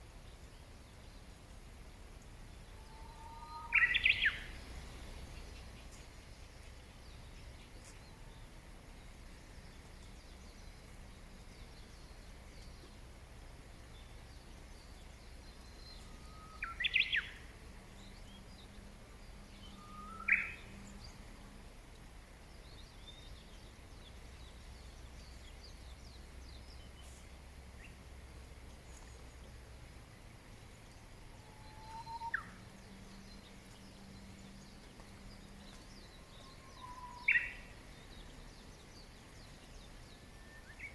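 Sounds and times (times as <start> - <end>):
low background noise: 0.0 - 40.9
faint high bird chirps: 2.7 - 4.6, 15.6 - 18.4, 19.5 - 21.0, 30.8 - 40.9
bird calls sweeping upward: 2.9 - 4.5, 31.4 - 32.7, 35.7 - 37.7.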